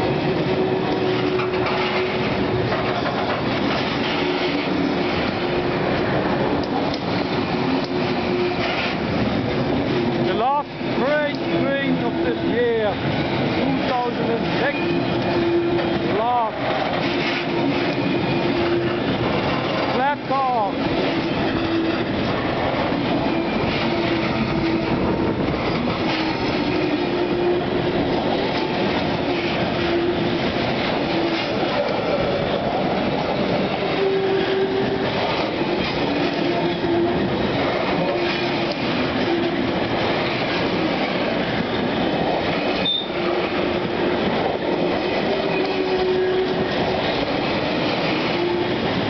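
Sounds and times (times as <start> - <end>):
train wheels rumbling on rails: 0.0 - 49.0
wheel squeals: 42.7 - 43.4.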